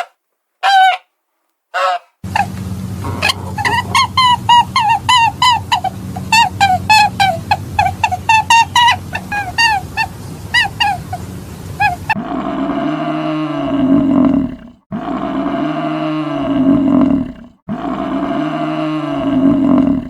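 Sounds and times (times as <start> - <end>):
high-pitched animal calls: 1.8 - 14.0
low drawn-out animal roar: 2.2 - 7.4, 12.0 - 20.0.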